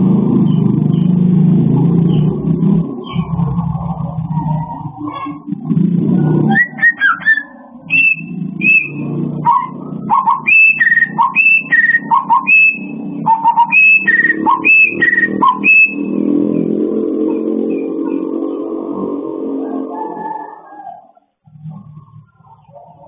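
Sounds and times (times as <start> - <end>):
songbird whistling: 6.5 - 16.1.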